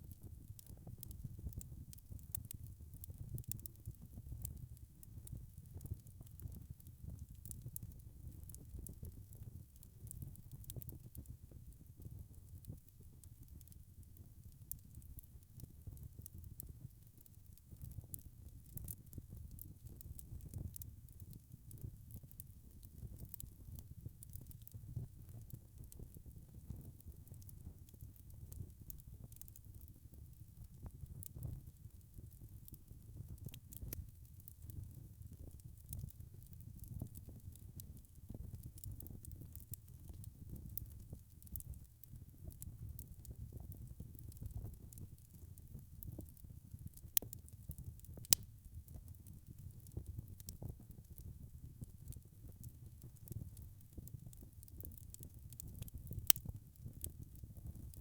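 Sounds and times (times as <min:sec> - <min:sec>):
wood fire crackling: 0:00.1 - 0:58.0.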